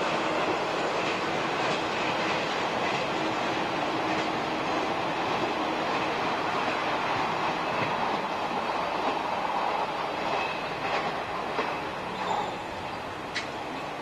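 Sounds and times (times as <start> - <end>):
train wheels rumbling on rail: 0.0 - 14.0
faint high squeal: 12.1 - 12.8.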